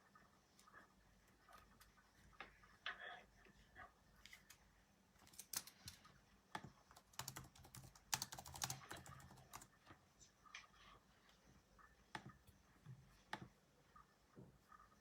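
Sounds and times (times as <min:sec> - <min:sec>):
keyboard typing: 0:05.2 - 0:10.7.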